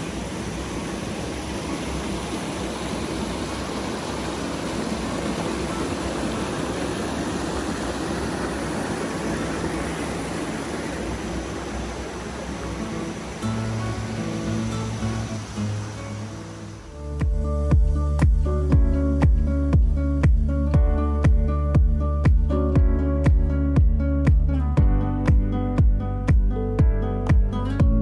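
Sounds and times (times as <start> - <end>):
waterfall roaring: 0.0 - 17.1.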